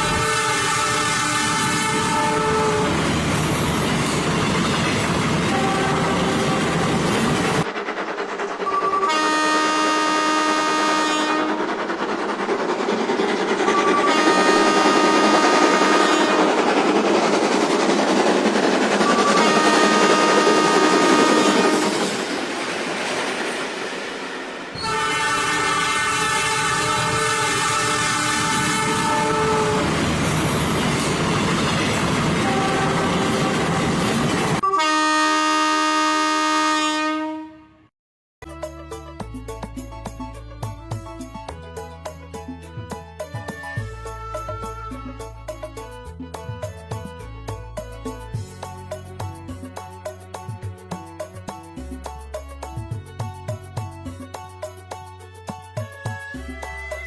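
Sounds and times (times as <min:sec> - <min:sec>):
train horn blasts: 0:00.0 - 0:03.0, 0:05.5 - 0:07.1, 0:08.6 - 0:11.7, 0:13.7 - 0:16.7, 0:19.0 - 0:22.1, 0:24.8 - 0:30.1, 0:32.4 - 0:34.0, 0:34.6 - 0:37.9
train running noise: 0:00.0 - 0:35.2, 0:38.5 - 0:57.0.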